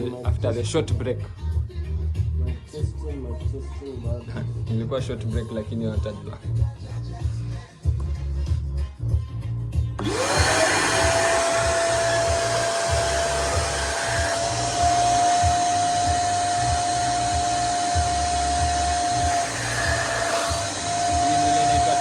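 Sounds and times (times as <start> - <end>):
vacuum cleaner motor whine: 10.0 - 22.0.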